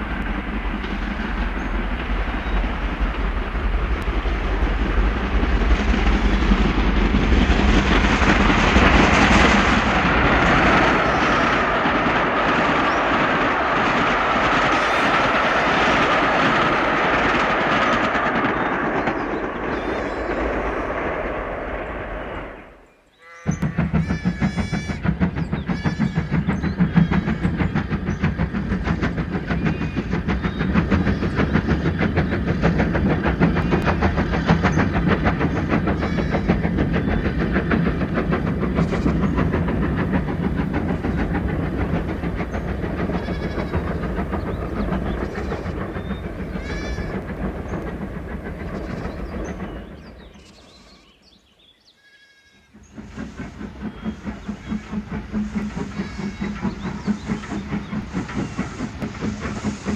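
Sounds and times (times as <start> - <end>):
train running on rails: 0.0 - 59.9
wheels clacking over rail joints: 23.5 - 50.8, 52.4 - 59.9.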